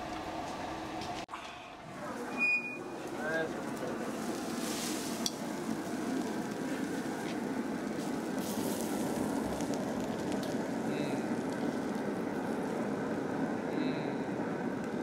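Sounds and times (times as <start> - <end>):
grill fire rushing: 1.9 - 15.0
steaks sizzling: 3.7 - 13.3.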